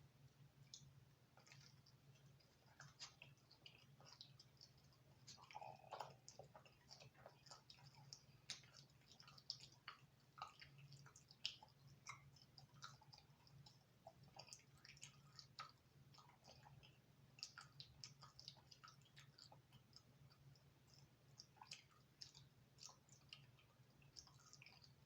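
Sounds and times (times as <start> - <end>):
chewing crispy pizza: 0.0 - 25.0.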